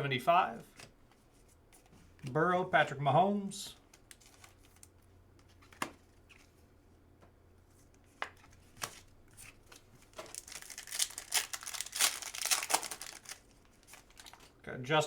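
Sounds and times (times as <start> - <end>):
card pack wrapper tearing: 10.2 - 14.5.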